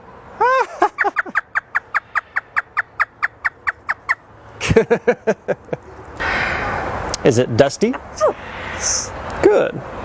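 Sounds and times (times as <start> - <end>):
parrot imitating laughter: 0.4 - 2.6.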